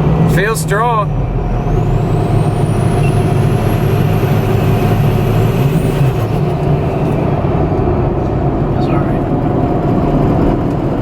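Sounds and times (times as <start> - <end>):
diesel engine accelerating: 0.0 - 11.0
turbocharger whistle: 0.4 - 8.1.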